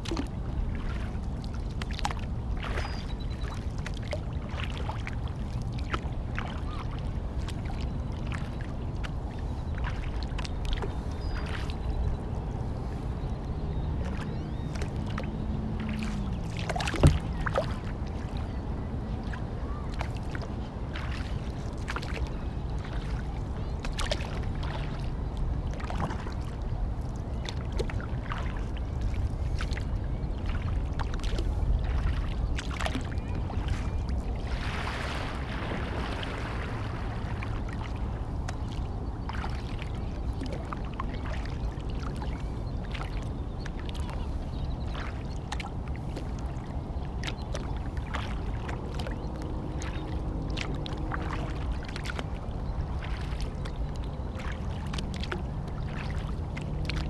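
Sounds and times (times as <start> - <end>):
steady low rumble: 0.0 - 57.0
kayak paddle strokes: 15.8 - 18.3.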